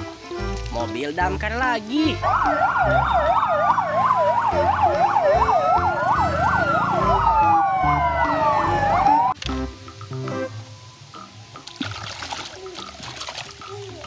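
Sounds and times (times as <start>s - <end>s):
wailing siren: 2.2s - 9.4s
yelping siren: 2.2s - 9.4s.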